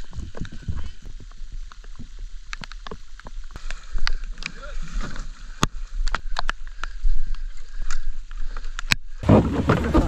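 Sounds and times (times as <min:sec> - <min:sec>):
light rain pattering: 0:00.0 - 0:09.0.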